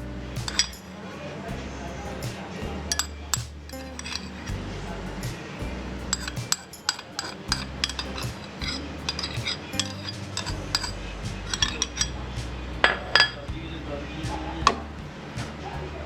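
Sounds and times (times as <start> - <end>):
background music: 0.0 - 16.0
metal utensils clinking on dish: 2.1 - 4.4, 6.1 - 12.2.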